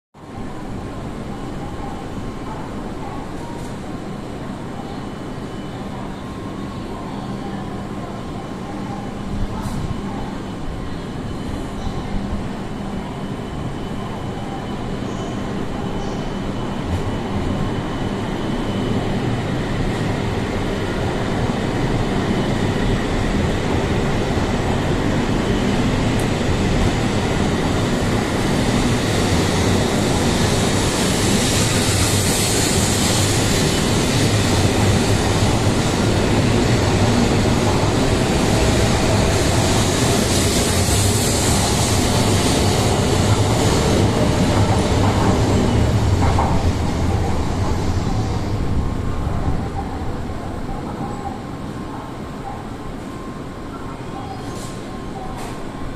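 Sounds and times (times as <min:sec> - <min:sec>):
train rumbling and hissing: 0:00.2 - 0:55.9.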